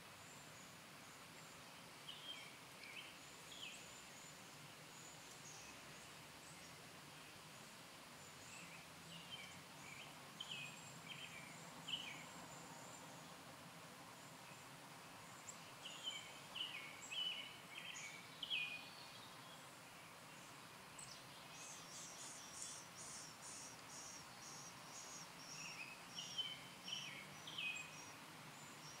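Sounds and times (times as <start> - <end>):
faint steady hiss: 0.0 - 29.0
small birds chirping quickly: 14.4 - 29.0.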